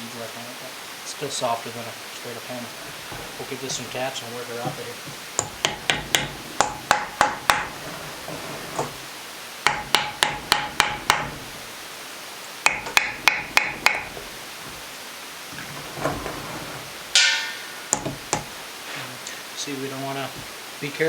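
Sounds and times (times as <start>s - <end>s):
rubber mallet tapping metal cylinder: 5.4s - 7.8s, 9.7s - 11.4s, 12.6s - 14.3s, 17.2s - 18.5s.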